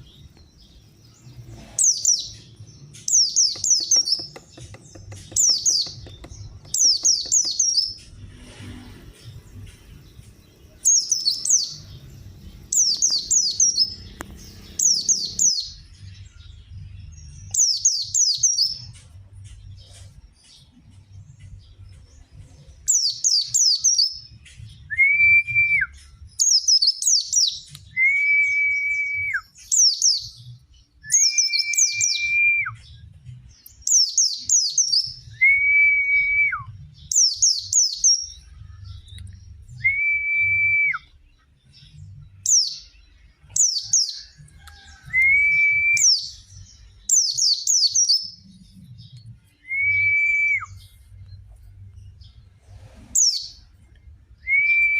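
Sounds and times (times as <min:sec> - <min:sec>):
bird chirping: 0:00.0 - 0:25.0, 0:29.4 - 0:35.7, 0:36.8 - 0:54.9
bird whistled notes: 0:31.0 - 0:32.8, 0:45.2 - 0:46.4, 0:49.7 - 0:50.9.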